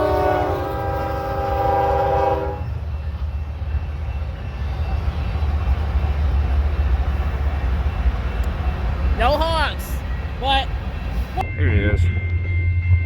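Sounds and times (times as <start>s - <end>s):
locomotive air horn: 0.0s - 2.7s
passing train rumble: 0.0s - 13.0s.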